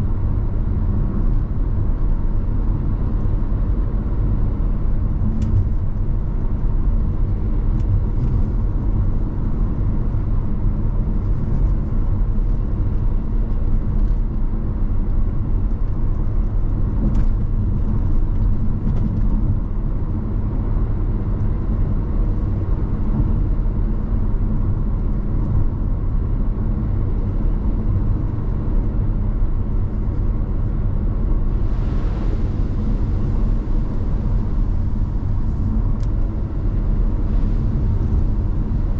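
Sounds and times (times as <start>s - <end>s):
road and engine rumble: 0.0s - 38.9s.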